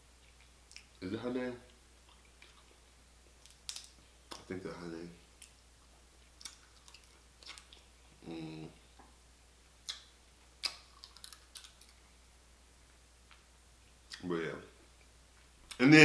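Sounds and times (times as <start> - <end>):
person chewing: 0.2 - 1.0, 1.7 - 2.8, 5.4 - 8.2, 9.8 - 12.1
person humming: 8.2 - 8.8.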